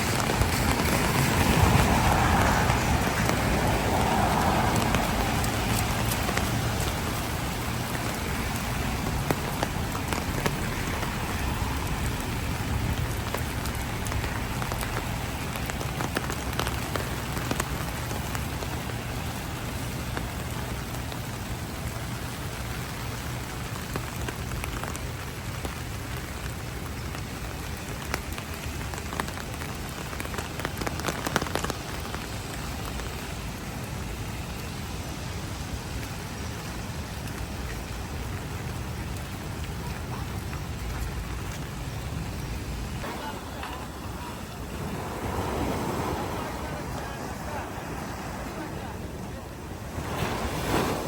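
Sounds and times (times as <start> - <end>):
heavy rain falling: 0.0 - 51.0.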